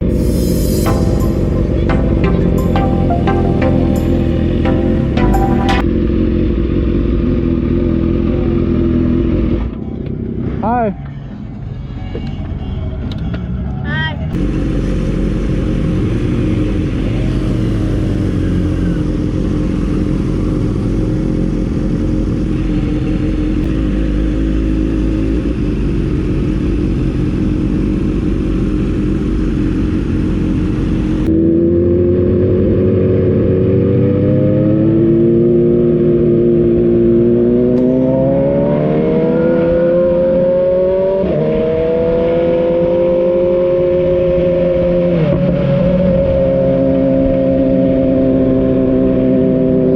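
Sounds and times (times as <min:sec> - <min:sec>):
motorcycle engine accelerating: 0:14.4 - 0:49.9.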